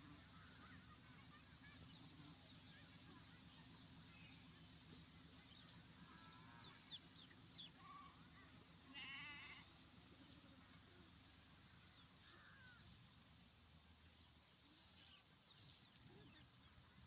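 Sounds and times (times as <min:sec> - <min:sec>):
wavering bleat-like animal call: 0:08.9 - 0:09.7.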